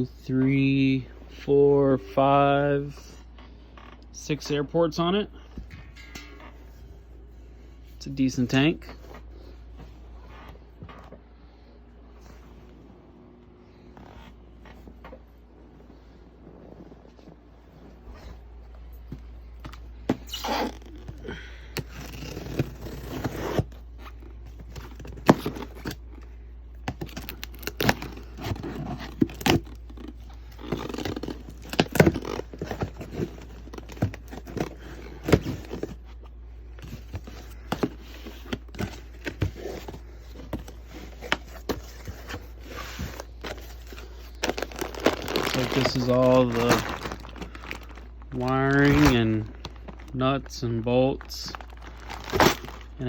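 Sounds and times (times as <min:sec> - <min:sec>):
packaging rustling: 0:19.5 - 0:50.5, 0:51.1 - 0:53.0.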